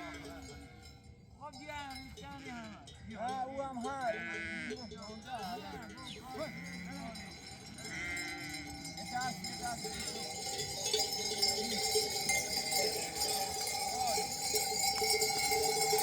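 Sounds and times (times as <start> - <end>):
animal bells clanking: 0.0 - 16.0
sheep bleating: 4.0 - 10.7.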